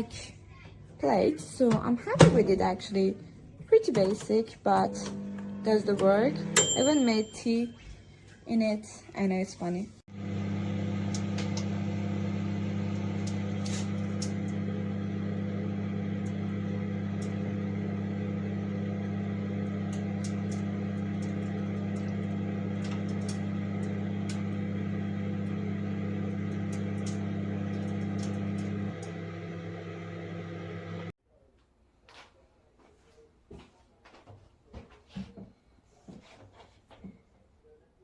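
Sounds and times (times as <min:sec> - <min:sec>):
microwave oven humming: 0:04.8 - 0:07.3, 0:10.1 - 0:31.2.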